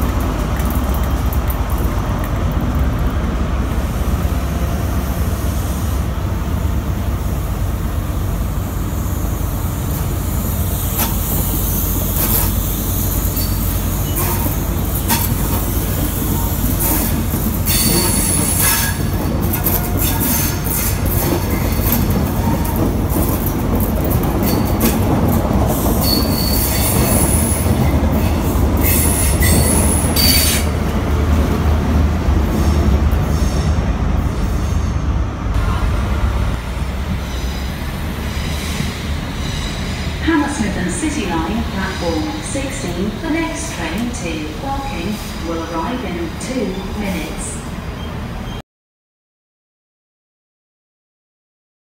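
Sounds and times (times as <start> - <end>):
wheels clicking over rail joints: 0.0 - 3.3, 10.8 - 30.6
train coaches rumbling past: 0.0 - 48.6.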